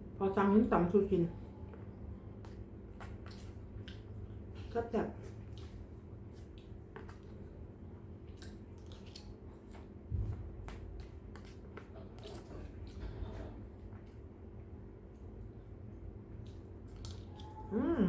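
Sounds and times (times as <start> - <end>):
steady low hum: 0.0 - 18.0
person chewing crunchy food: 1.8 - 14.4.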